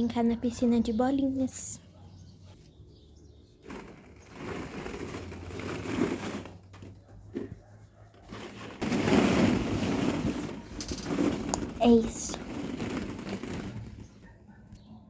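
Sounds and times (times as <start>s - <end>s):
plastic balls rustling and clattering: 3.6s - 14.3s.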